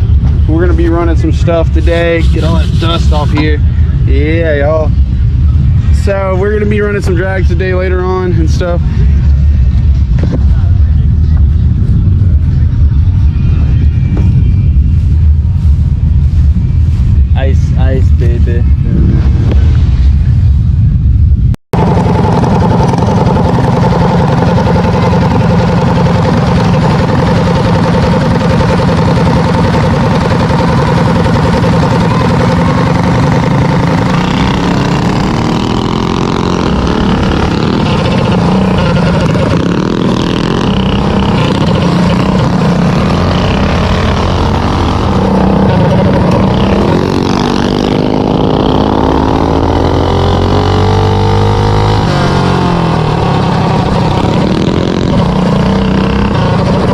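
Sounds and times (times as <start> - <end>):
minibike engines racing: 21.8 - 56.9.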